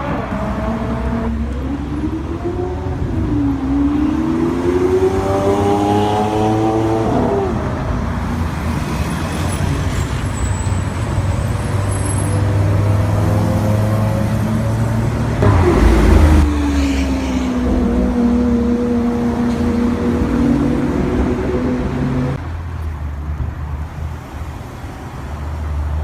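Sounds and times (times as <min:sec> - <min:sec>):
supercar engine rising in pitch: 0:15.4 - 0:22.4.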